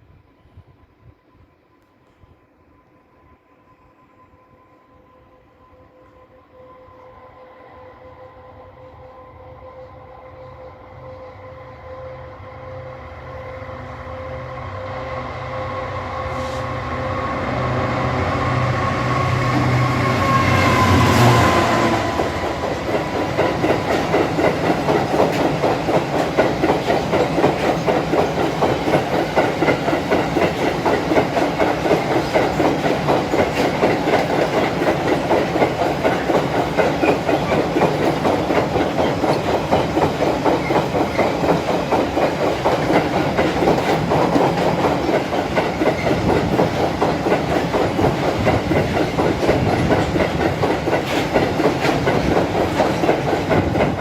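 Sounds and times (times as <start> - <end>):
diesel locomotive passing: 0.0 - 54.0
train wheels clattering on rail joints: 20.3 - 54.0.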